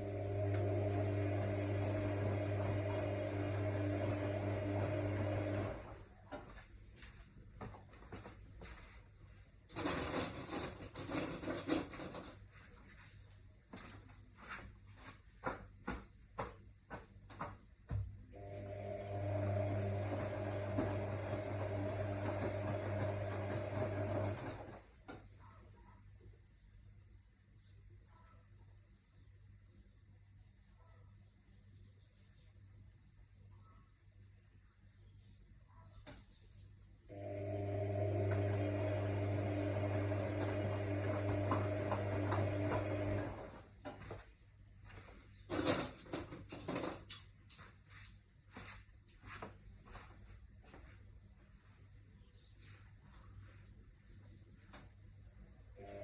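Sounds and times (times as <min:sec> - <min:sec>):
washing machine humming: 0:00.0 - 0:08.7, 0:17.4 - 0:25.5, 0:37.1 - 0:44.2, 0:55.7 - 0:56.0
washing machine electrical hum: 0:00.0 - 0:56.0.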